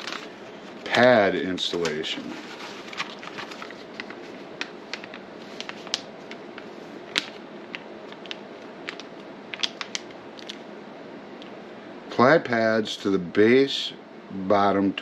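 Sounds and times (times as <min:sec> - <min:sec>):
steady fan-like hum: 0:00.0 - 0:15.0.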